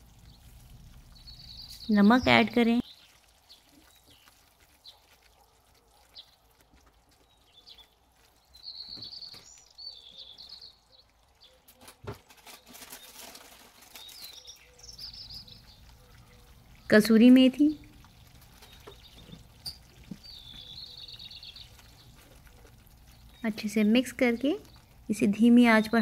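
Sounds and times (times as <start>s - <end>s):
faint bird chirps: 7.2s - 11.9s, 12.7s - 18.0s, 18.6s - 24.9s.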